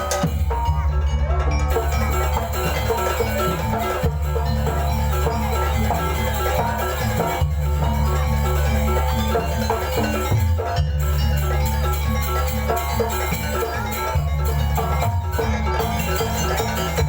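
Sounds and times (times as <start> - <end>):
drums: 0.0 - 17.0
metal-keyed percussion pattern: 0.0 - 17.0
deep heavy bass: 0.2 - 12.7.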